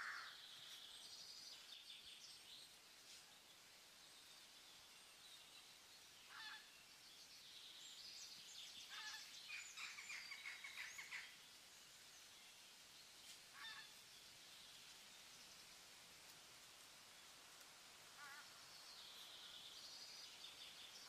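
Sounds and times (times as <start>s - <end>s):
quiet hiss: 0.0s - 21.0s
bird calls: 6.2s - 11.4s, 13.3s - 14.0s.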